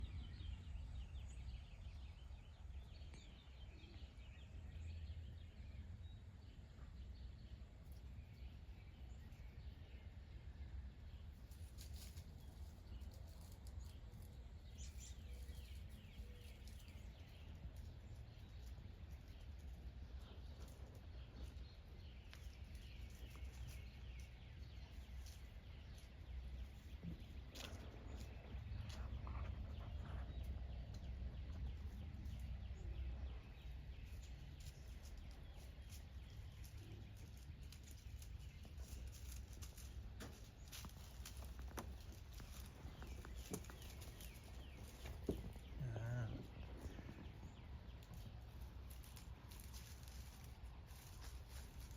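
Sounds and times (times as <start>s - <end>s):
distant birds chirping: 0.0s - 51.9s
faint clicks and crackles: 33.9s - 51.9s.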